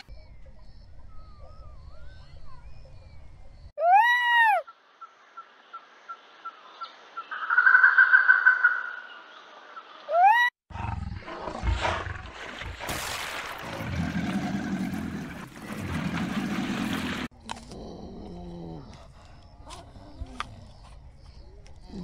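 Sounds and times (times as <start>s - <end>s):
water noise: 10.7s - 17.3s.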